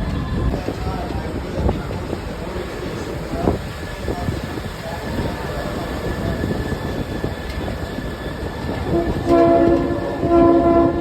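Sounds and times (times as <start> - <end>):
train rumbling on track: 0.0 - 11.0
train horn blasts: 8.8 - 11.0.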